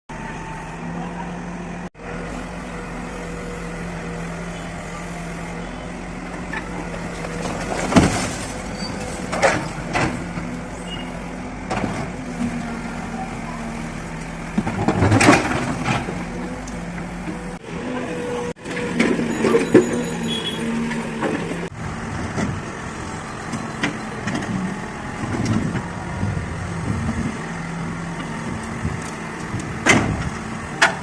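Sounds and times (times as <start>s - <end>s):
engine running: 0.1s - 31.0s
demolition knocks and crashes: 6.9s - 10.5s, 14.5s - 16.3s.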